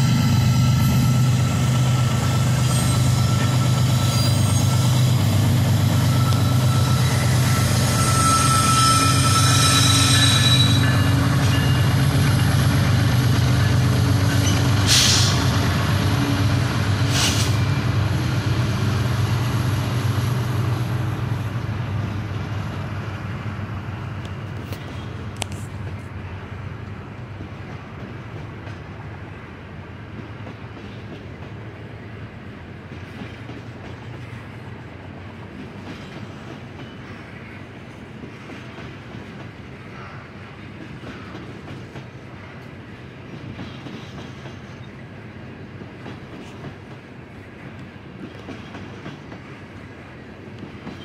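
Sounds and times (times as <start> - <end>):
train wheels squealing: 0.0 - 18.0
diesel locomotive engine rumble: 0.0 - 51.0.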